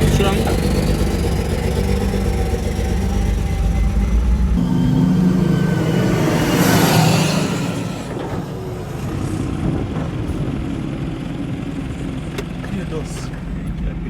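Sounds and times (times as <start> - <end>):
diesel truck engine droning: 0.0 - 14.0
rush of noise: 3.5 - 10.8.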